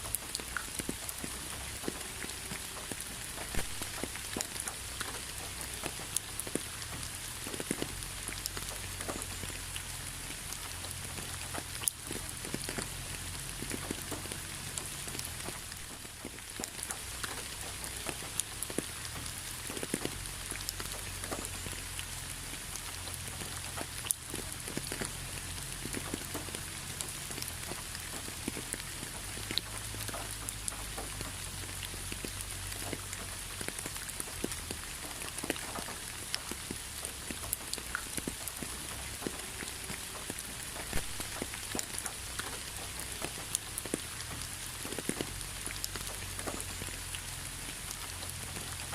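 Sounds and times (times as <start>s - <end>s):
rain pattering: 0.0s - 48.9s.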